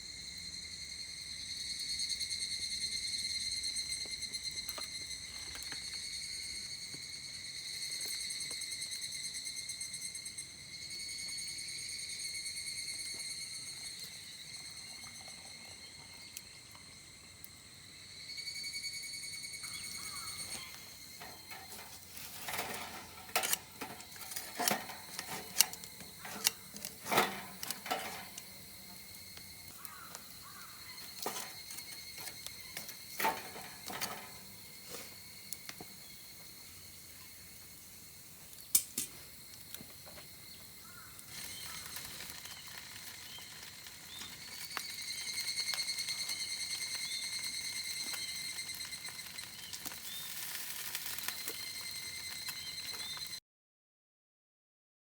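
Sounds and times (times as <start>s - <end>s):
high-pitched insect drone: 0.0s - 38.7s, 39.3s - 53.4s
cookware and utensils clinking: 21.2s - 28.7s, 31.1s - 34.5s.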